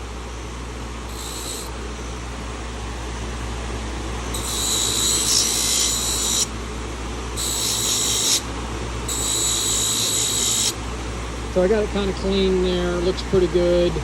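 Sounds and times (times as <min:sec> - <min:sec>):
steady low hum: 0:00.0 - 0:14.0
small power tool whining: 0:01.1 - 0:02.1, 0:04.2 - 0:06.6, 0:07.3 - 0:08.5, 0:09.1 - 0:10.8.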